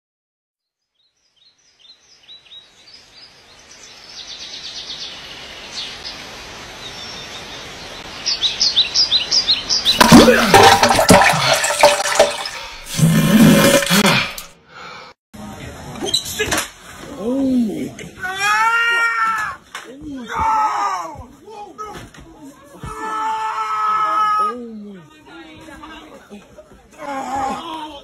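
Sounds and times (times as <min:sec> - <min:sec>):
small birds chirping: 0:00.6 - 0:10.0.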